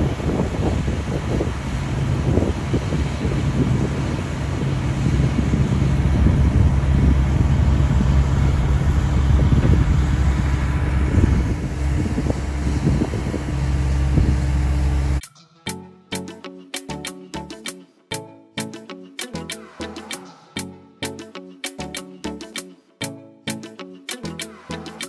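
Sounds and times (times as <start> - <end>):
combine engine low drone: 0.0 - 15.2.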